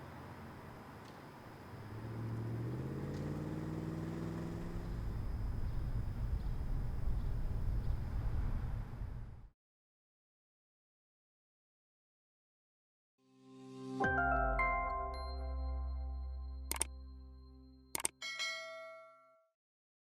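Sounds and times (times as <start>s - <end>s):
pickup truck engine: 1.4s - 7.9s
low rumble: 4.8s - 9.5s.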